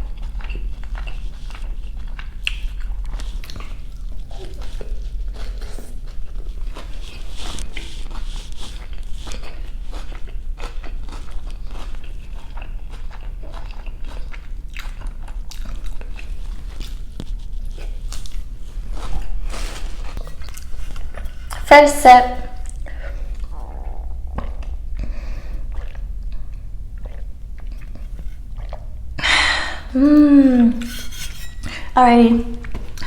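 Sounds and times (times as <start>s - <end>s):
person chewing food: 0.0s - 21.6s, 22.6s - 30.8s, 32.6s - 33.0s
steady low hum: 16.0s - 33.0s.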